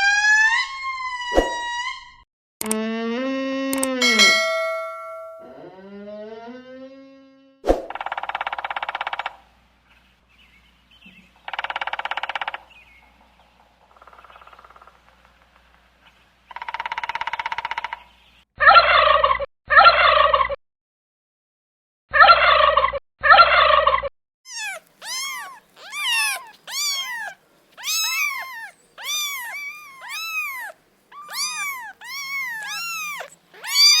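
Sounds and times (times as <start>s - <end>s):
buzzy rattling animal calls: 24.5s - 34.0s
loud short animal calls: 24.5s - 34.0s
short arching animal calls: 24.5s - 34.0s.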